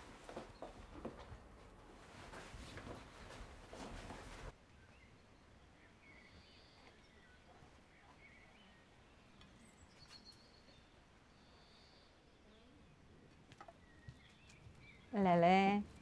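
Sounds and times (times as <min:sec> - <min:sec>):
faint bird chirps and whistles: 0:04.7 - 0:13.0.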